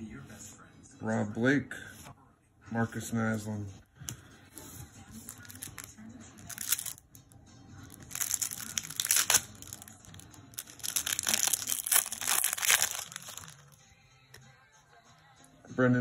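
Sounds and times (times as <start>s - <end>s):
wrapper crinkling and tearing: 5.2s - 7.0s, 7.9s - 13.8s.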